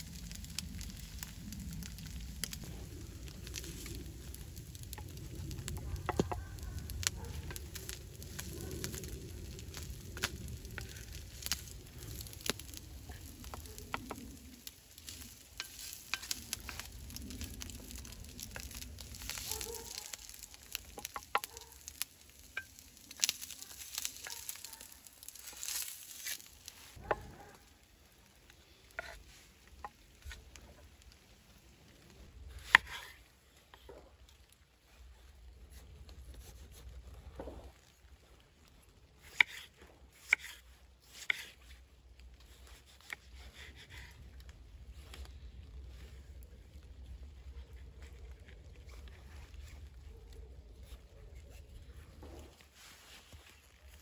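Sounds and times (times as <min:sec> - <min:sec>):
omelette sizzling on hot stone: 0:00.0 - 0:49.9
wooden spatula scraping stone: 0:03.5 - 0:27.6, 0:28.7 - 0:30.8, 0:32.4 - 0:34.2, 0:39.2 - 0:45.3.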